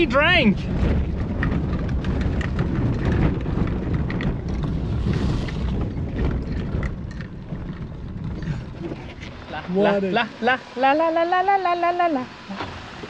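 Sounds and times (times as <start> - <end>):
knocks and rattles: 0.0 - 9.5
engine and drivetrain rumble: 0.0 - 13.0
wind buffeting microphone: 0.0 - 13.0.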